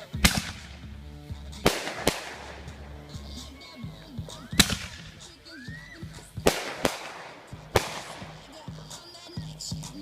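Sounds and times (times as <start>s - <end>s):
fireworks bangs: 0.0s - 0.9s, 1.6s - 3.4s, 4.5s - 5.2s, 6.4s - 8.6s
background music: 0.0s - 10.0s.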